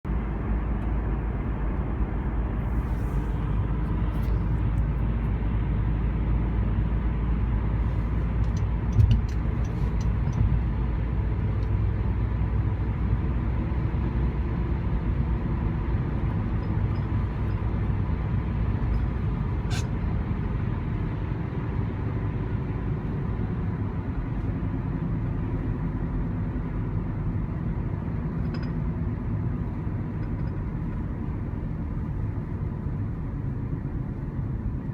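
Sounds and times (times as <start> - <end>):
road and tyre rumble: 0.0 - 34.9
droning hum: 9.2 - 20.6.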